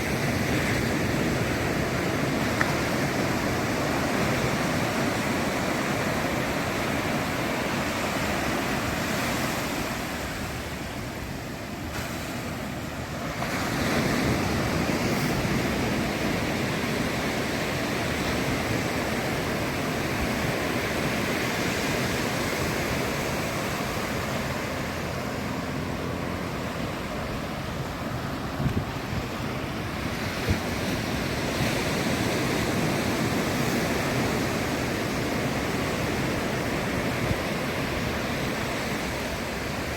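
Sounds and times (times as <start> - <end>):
ocean surf on sandy beach: 0.0 - 39.9
wind on microphone: 0.0 - 39.9.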